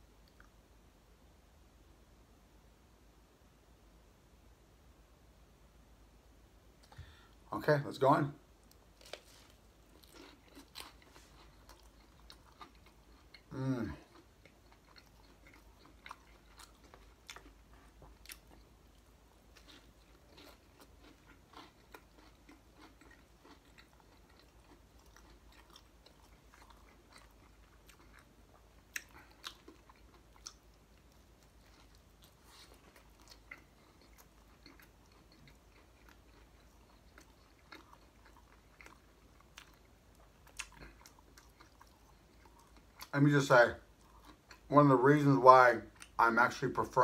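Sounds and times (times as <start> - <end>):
crunchy chewing: 8.6 - 44.8.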